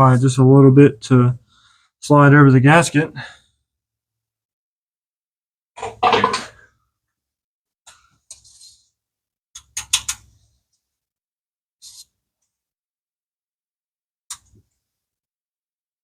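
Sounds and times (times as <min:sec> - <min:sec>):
brief scrapes: 0:08.3 - 0:08.9, 0:11.8 - 0:12.1
sharp clicks and knocks: 0:09.6 - 0:10.3.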